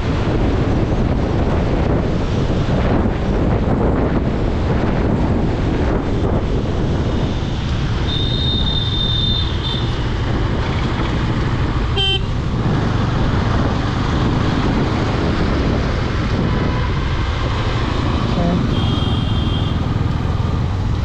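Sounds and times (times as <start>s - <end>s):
engine and wind rumble: 0.0s - 21.0s
vehicle horn toot: 8.1s - 9.9s, 12.0s - 12.3s, 18.4s - 19.9s.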